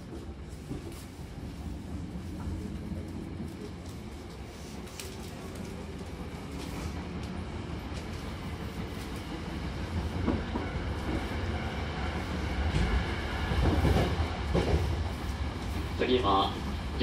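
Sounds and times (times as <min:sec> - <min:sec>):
rumble of wheels on rail: 0:00.0 - 0:17.0.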